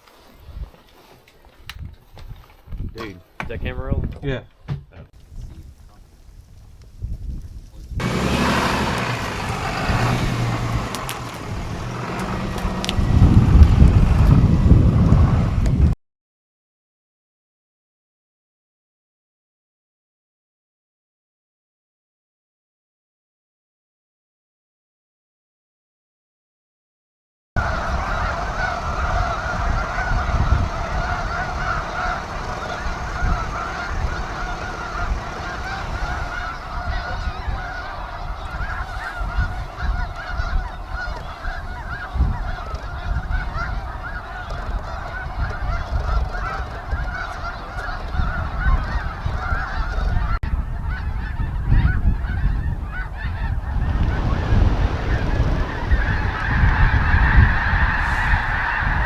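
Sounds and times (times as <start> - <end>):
flock of geese honking: 8.0 - 15.3, 27.6 - 59.0.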